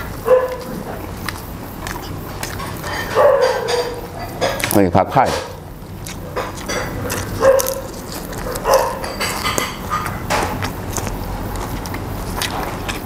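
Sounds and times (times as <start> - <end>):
chewing and crunching greens: 0.0 - 13.0
mouth clicks and lip smacks: 0.5 - 3.2, 5.9 - 13.0.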